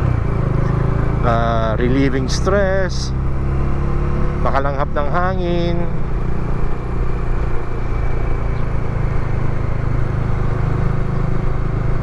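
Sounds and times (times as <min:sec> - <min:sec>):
motorcycle engine cruising: 0:00.0 - 0:12.0
road noise: 0:00.0 - 0:12.0.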